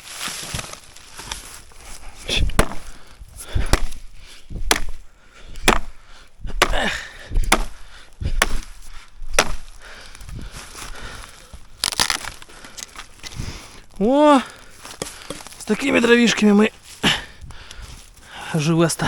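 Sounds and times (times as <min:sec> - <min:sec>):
axe chopping firewood: 0:02.4 - 0:09.9.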